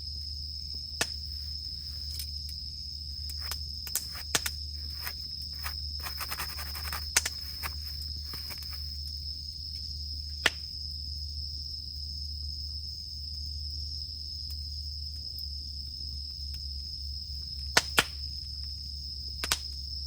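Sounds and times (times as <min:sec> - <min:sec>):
cicadas droning: 0:00.0 - 0:20.0
campfire crackling: 0:03.2 - 0:09.0.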